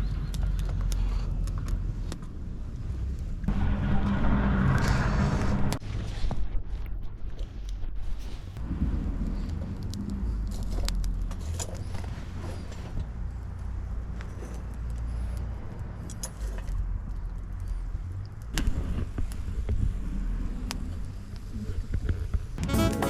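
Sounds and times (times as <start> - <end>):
sharp clicks and snaps: 0.0 - 5.8, 9.2 - 12.0, 13.0 - 19.9, 20.6 - 22.5.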